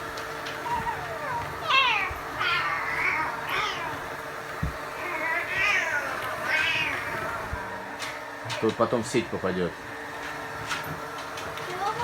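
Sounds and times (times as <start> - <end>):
cat meowing: 0.6 - 4.1, 4.9 - 7.5.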